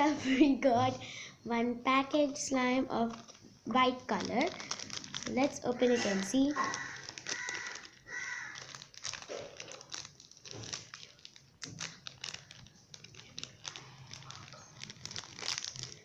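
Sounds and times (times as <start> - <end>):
plastic packaging crinkling: 2.4 - 16.0
small clicks and crackles: 3.0 - 3.4, 4.1 - 16.0.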